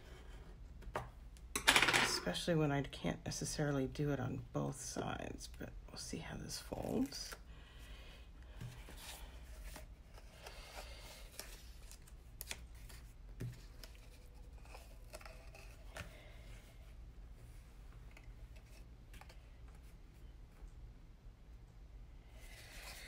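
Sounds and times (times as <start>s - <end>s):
cardstock rustling and folding: 6.5s - 7.4s, 8.5s - 19.9s.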